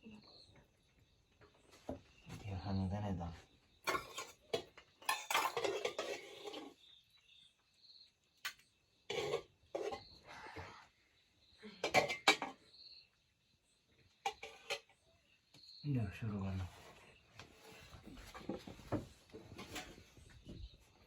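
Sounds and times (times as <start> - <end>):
dishes and cutlery clinking: 3.9 - 6.8, 8.5 - 10.1, 11.8 - 12.6, 14.2 - 14.9.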